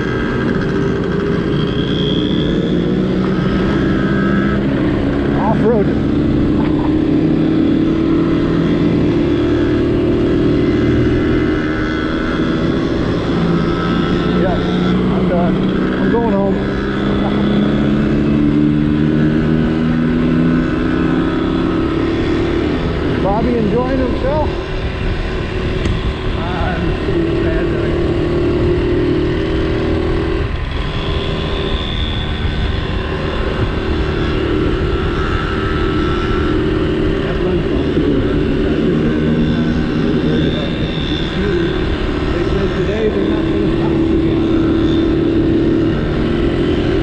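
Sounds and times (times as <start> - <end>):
small motorcycle engine running: 0.0 - 47.0
wind noise: 24.0 - 27.8.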